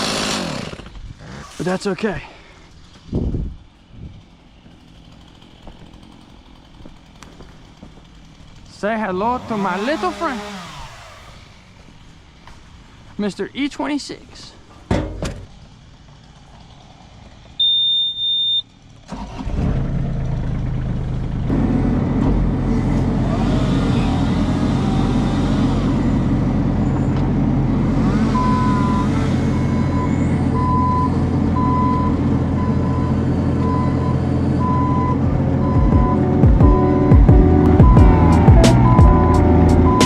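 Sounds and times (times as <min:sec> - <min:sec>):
diesel engine running: 0:02.4 - 0:13.2, 0:14.9 - 0:40.0
beeping alarm: 0:17.6 - 0:18.6, 0:28.4 - 0:29.1, 0:29.9 - 0:40.0
short warning beep: 0:17.6 - 0:18.6.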